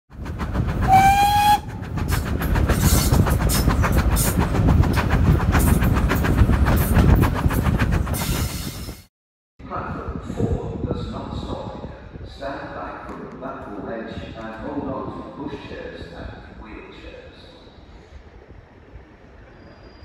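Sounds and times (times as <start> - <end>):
train horn blast: 0.9 - 1.8.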